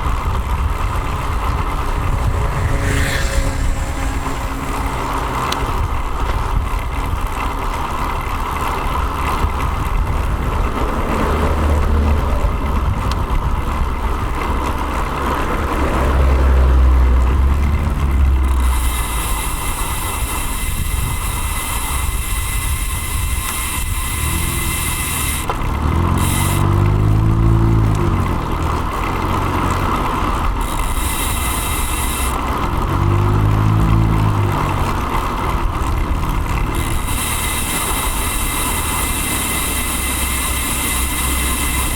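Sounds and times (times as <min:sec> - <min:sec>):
wind on microphone: 0:00.0 - 0:07.6, 0:09.3 - 0:28.6
rumble of motor vehicles: 0:00.0 - 0:41.9
vehicle engine passing: 0:00.0 - 0:41.9.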